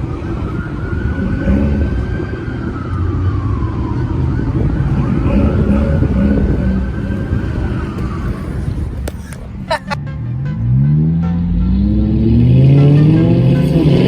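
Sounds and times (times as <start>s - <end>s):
police siren wailing: 0.0s - 10.0s, 12.8s - 14.0s
engines rumbling: 0.0s - 14.0s.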